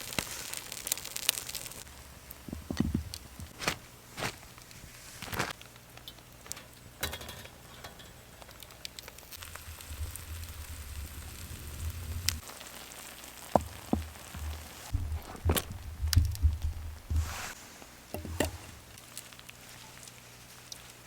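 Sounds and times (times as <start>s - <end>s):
food sizzling in a frying pan: 0.0s - 2.9s, 5.7s - 15.0s
fire crackling: 0.0s - 7.0s, 7.6s - 21.0s
knocks: 13.6s - 17.6s.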